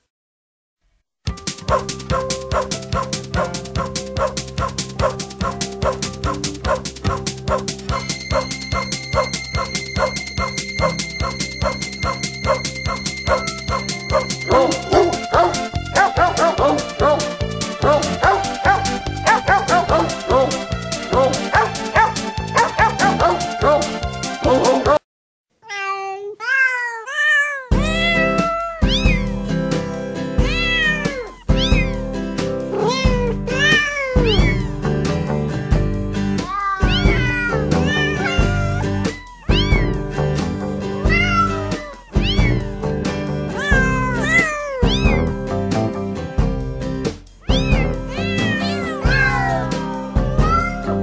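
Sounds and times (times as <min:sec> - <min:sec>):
backing music track: 0:01.3 - 0:25.0, 0:27.7 - 0:51.0
cat meows set to melody: 0:07.9 - 0:15.2, 0:25.6 - 0:29.4, 0:30.4 - 0:32.1, 0:32.7 - 0:34.9, 0:36.4 - 0:40.0, 0:41.0 - 0:42.7, 0:43.5 - 0:45.4, 0:47.4 - 0:51.0.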